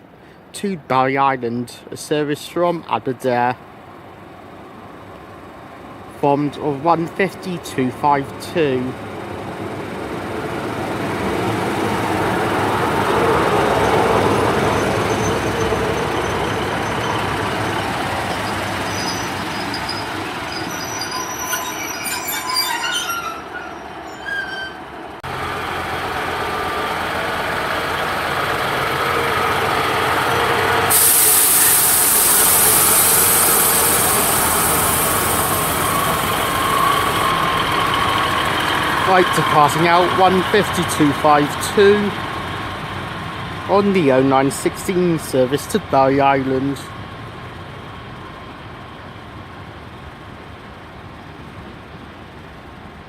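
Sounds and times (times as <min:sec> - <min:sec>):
train diesel engines idling: 0:00.0 - 0:53.0
train brakes squealing: 0:13.4 - 0:25.0, 0:30.8 - 0:42.3
train air hiss: 0:30.8 - 0:41.6.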